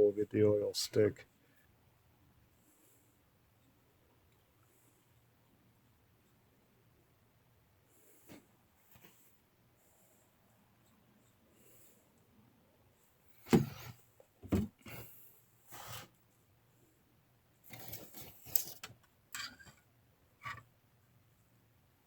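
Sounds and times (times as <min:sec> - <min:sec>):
rubbing and scraping: 0:17.7 - 0:18.9.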